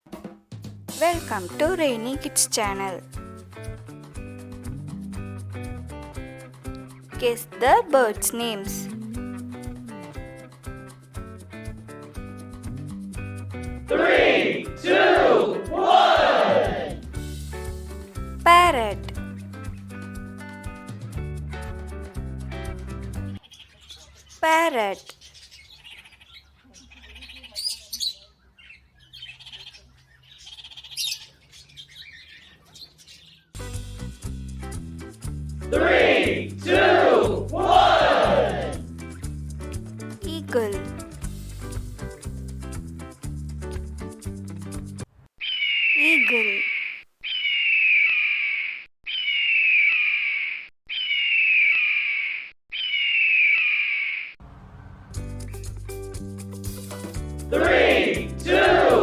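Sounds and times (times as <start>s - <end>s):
parrot squawking: 45.4s - 48.5s.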